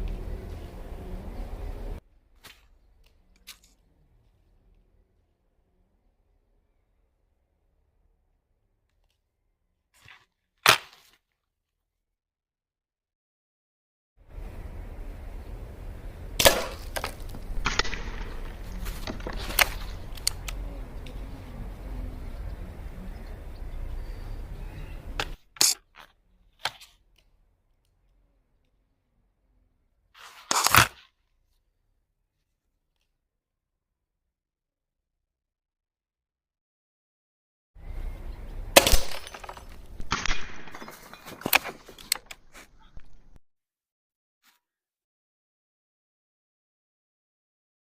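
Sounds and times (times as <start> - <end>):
air rifle shot: 16.4 - 17.0
glass bottle breaking: 38.8 - 42.0.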